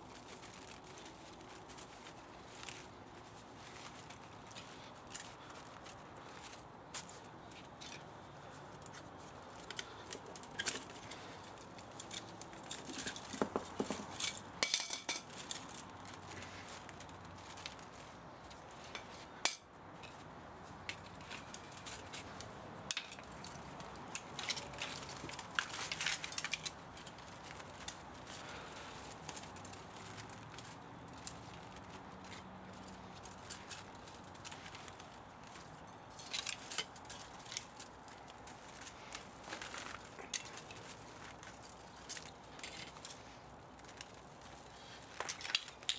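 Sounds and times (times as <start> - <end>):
metal parts and tools clinking: 9.6 - 16.4, 20.9 - 45.9.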